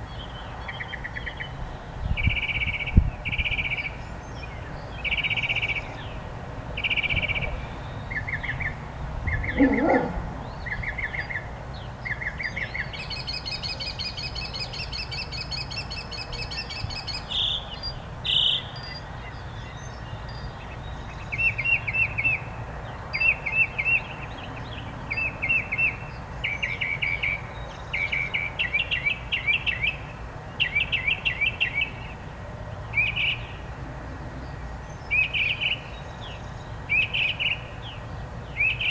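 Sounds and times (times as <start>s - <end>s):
songbirds singing trilled phrases: 0.0s - 33.6s, 34.4s - 38.9s.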